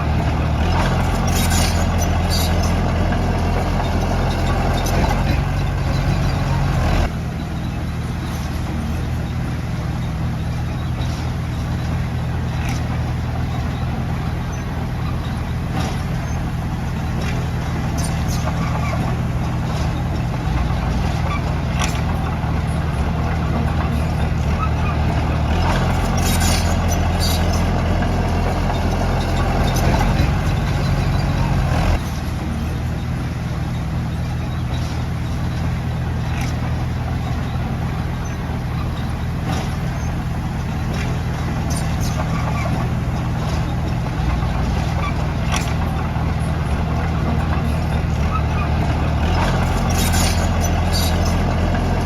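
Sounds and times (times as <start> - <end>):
diesel engine under load: 0.0 - 52.0.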